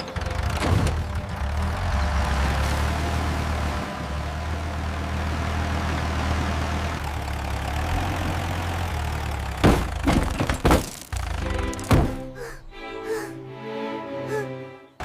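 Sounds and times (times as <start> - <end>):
tractor engine droning: 0.0 - 15.0
loud thuds and knocks: 9.6 - 12.3.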